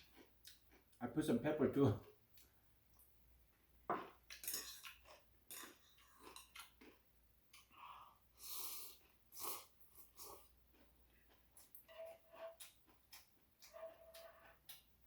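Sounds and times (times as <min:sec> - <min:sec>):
soft chewing smacks and clicks: 0:00.0 - 0:01.0, 0:02.0 - 0:03.2, 0:04.2 - 0:07.8, 0:08.9 - 0:11.9, 0:12.5 - 0:15.0.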